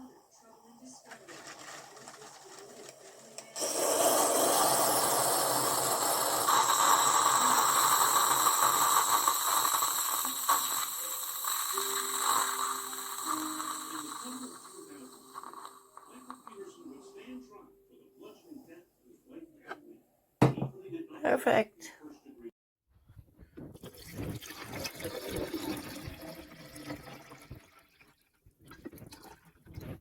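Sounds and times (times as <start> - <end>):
coffee machine pump hissing: 1.0 - 16.8.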